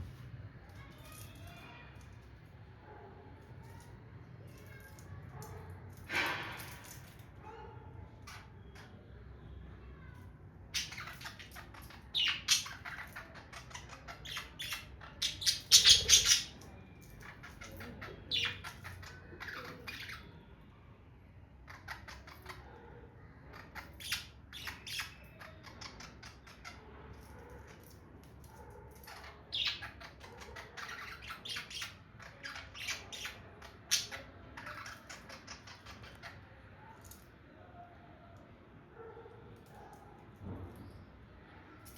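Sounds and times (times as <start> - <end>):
budgerigars chattering and squawking: 10.7 - 16.6, 29.0 - 36.5.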